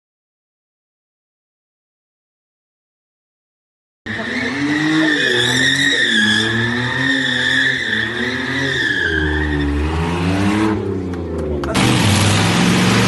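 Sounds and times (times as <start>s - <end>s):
car tyres squealing: 4.1s - 10.8s
car engine revving: 4.1s - 13.0s.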